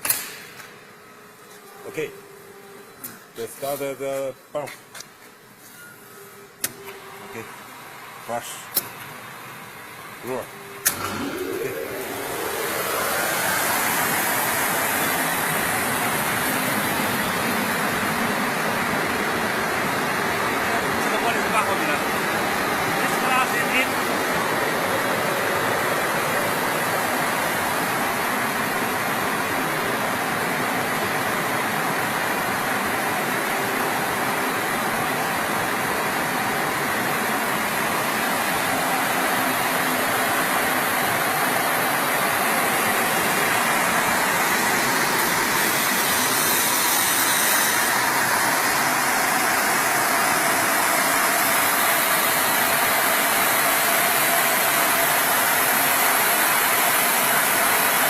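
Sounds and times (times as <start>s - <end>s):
machine motor noise: 10.3s - 28.8s.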